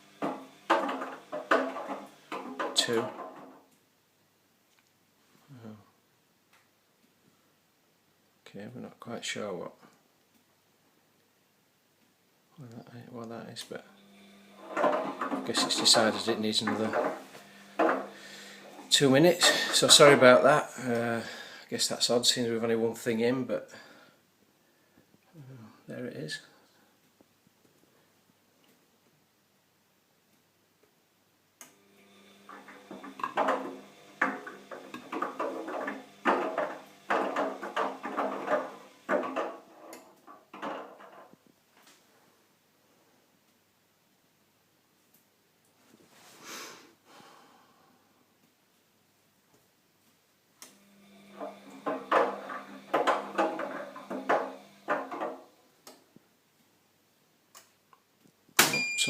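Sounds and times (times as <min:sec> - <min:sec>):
washing machine motor hum: 0:00.0 - 0:03.5, 0:13.8 - 0:20.4, 0:31.7 - 0:40.6, 0:50.7 - 0:55.6.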